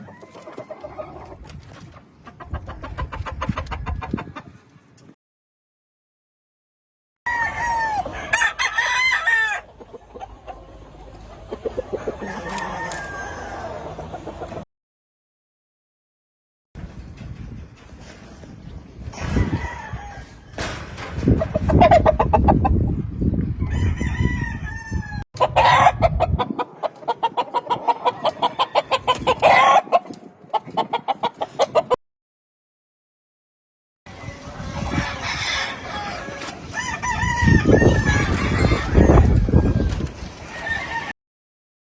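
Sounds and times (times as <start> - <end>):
chicken clucking: 0.0 - 4.8, 9.5 - 14.6, 25.4 - 32.0
rooster crowing: 7.3 - 9.7, 12.0 - 14.1, 19.4 - 20.5, 23.6 - 26.1, 34.9 - 39.9
rapid clucking: 25.4 - 32.0.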